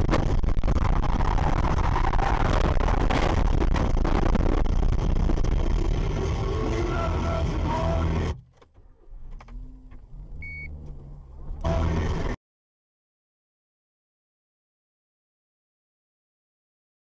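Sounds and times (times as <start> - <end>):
car road and engine noise: 0.0 - 12.4.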